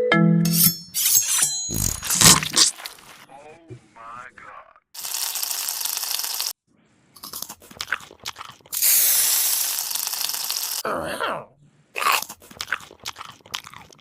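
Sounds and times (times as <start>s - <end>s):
crunching and chewing: 1.7s - 3.3s, 7.2s - 10.8s, 12.0s - 14.0s
loud hiss: 8.8s - 10.8s.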